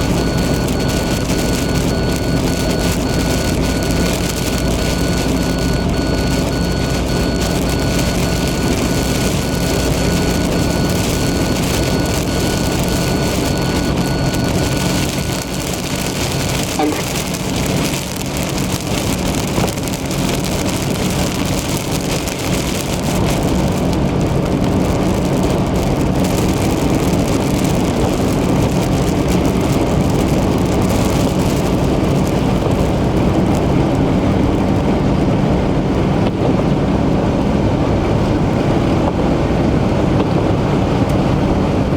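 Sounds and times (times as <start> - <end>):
engine and road hum: 0.0 - 41.9
rain hitting car: 0.0 - 41.9
tyres on wet pavement: 0.0 - 41.9
thin high tone: 16.8 - 17.4.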